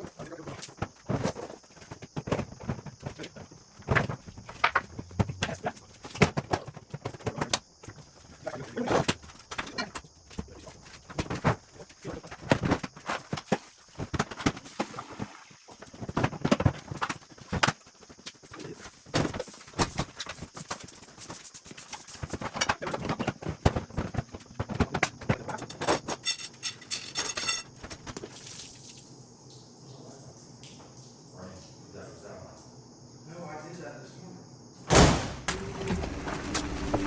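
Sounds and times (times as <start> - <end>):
rattling clicks: 25.6 - 27.7.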